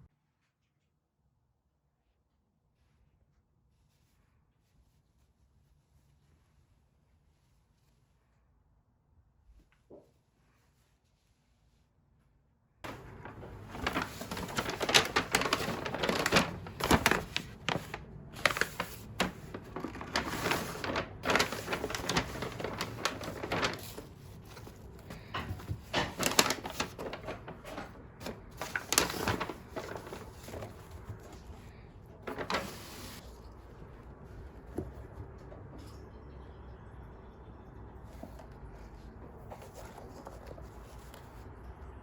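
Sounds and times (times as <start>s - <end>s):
packaging crinkling and rustling: 12.9s - 33.3s.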